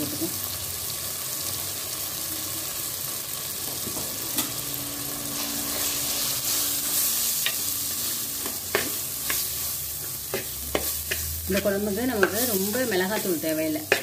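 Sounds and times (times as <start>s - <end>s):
vegetables sizzling in hot oil: 0.0s - 14.0s
spoon stirring: 8.4s - 14.0s.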